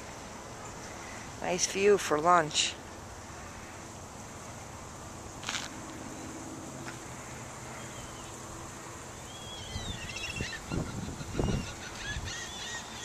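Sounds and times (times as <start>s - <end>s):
birds chirping: 7.7s - 8.5s, 9.1s - 13.0s.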